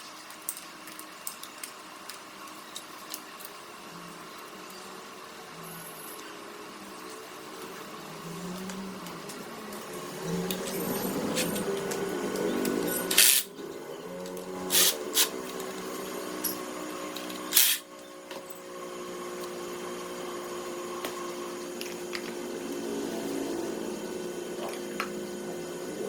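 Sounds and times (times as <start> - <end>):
power tool motor whirring: 10.1 - 13.6, 14.4 - 16.2, 17.1 - 17.9.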